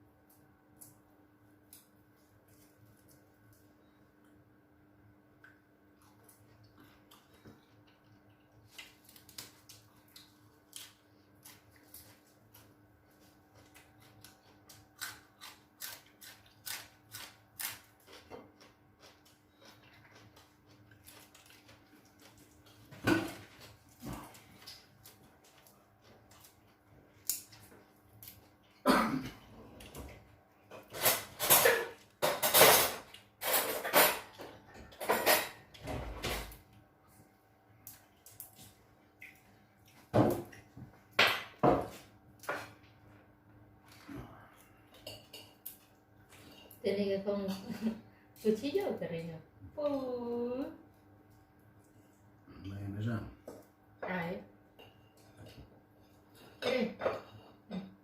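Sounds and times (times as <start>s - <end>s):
dishes and cutlery clattering: 30.8s - 36.5s.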